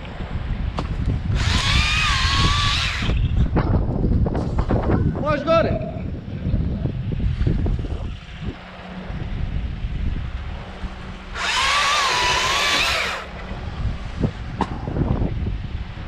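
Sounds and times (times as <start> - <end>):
wind buffeting microphone: 0.0 - 16.0
chainsaw cutting whine: 1.3 - 3.2, 10.6 - 13.6.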